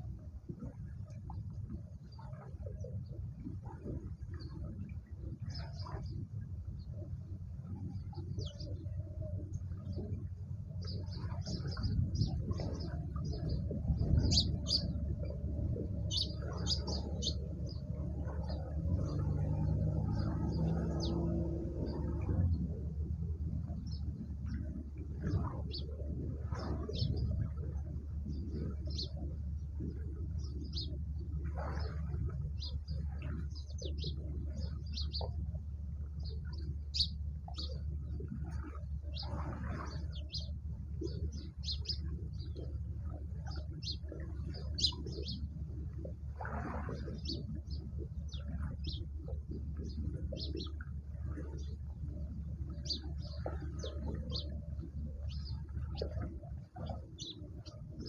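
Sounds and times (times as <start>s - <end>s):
steady low rumble: 0.0s - 58.0s
small birds chirping: 7.8s - 22.7s, 32.6s - 35.4s, 36.2s - 37.8s, 39.0s - 42.7s, 43.5s - 45.5s, 47.0s - 50.8s, 52.7s - 58.0s.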